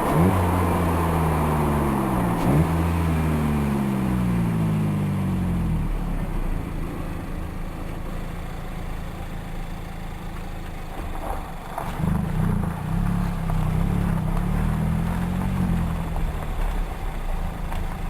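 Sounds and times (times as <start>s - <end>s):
wind and road rumble: 0.0s - 18.0s.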